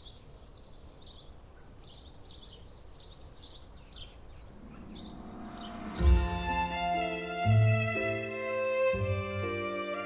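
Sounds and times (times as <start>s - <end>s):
small bird chirping: 0.0s - 6.4s.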